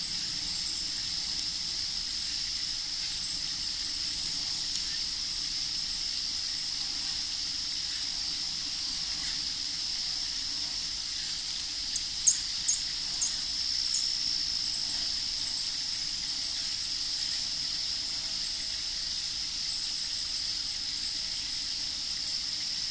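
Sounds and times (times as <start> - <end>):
small birds chirping: 0.0 - 5.2, 11.2 - 22.4
steady high-pitched hiss: 0.0 - 22.9.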